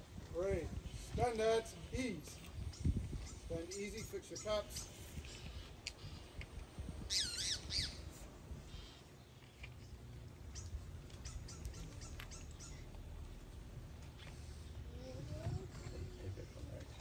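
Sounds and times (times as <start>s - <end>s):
bird squawking: 7.1s - 8.1s, 11.2s - 12.9s.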